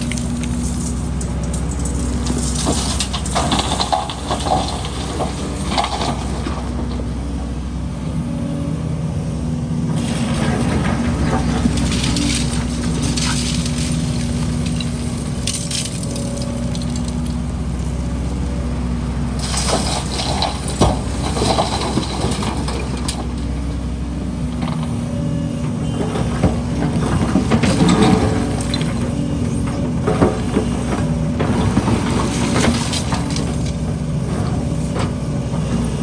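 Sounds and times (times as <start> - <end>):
concrete rubble clattering: 0.0 - 6.8, 10.0 - 17.5, 19.4 - 23.3, 29.8 - 35.2
excavator engine running: 0.0 - 36.0.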